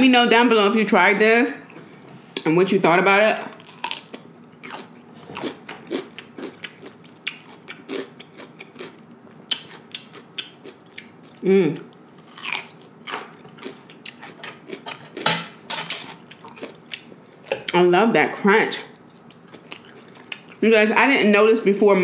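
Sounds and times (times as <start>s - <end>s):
cucumber crunching: 3.5s - 15.3s, 15.9s - 17.8s, 19.0s - 20.6s.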